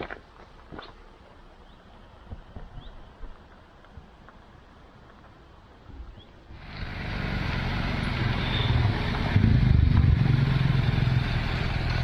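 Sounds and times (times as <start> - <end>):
road and wind noise: 0.0 - 12.0
motorcycle engine running: 6.6 - 12.0.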